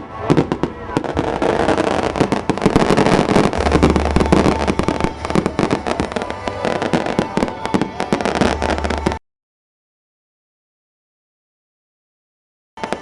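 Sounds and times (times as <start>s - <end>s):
fireworks crackling and popping: 0.0s - 9.2s, 12.8s - 13.0s.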